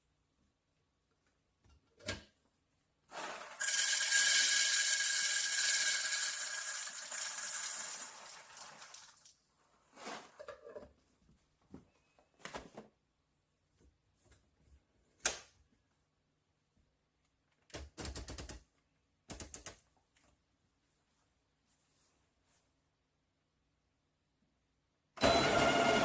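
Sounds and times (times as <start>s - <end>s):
coffee grinder grinding: 3.1s - 9.2s, 25.2s - 26.0s.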